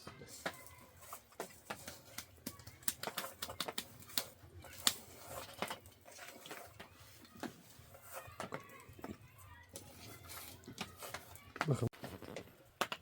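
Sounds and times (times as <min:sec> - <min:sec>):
irregular sharp clicks and taps: 0:01.4 - 0:05.0, 0:10.6 - 0:13.0.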